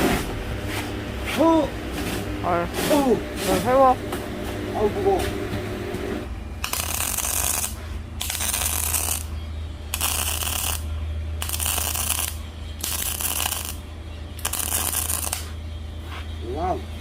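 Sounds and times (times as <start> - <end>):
welder low hum: 0.0 - 16.1
arc welding crackling hiss: 6.6 - 9.3, 9.9 - 13.8, 14.4 - 15.6.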